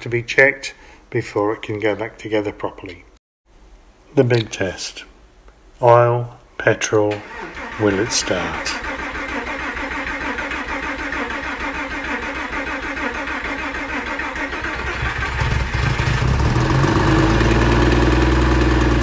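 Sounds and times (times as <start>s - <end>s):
engine starter cranking: 7.1s - 18.8s
car engine running: 15.4s - 19.0s.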